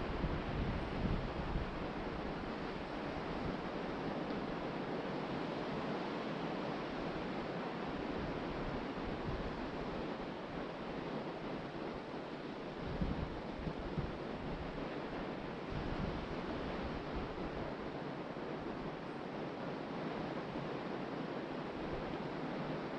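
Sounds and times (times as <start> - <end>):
wind buffeting microphone: 0.0 - 4.8, 12.6 - 18.0.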